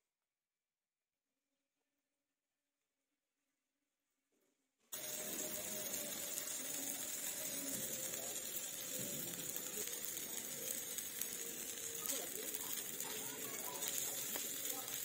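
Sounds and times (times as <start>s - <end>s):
food sizzling in frying pan: 5.0s - 15.0s.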